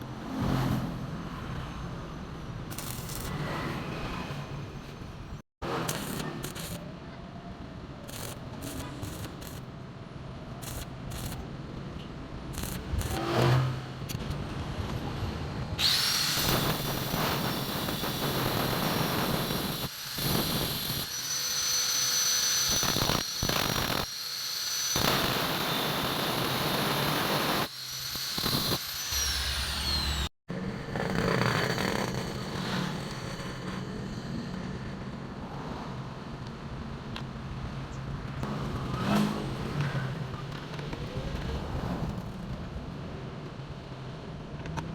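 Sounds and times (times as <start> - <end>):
electric motor whining: 15.8 - 30.3.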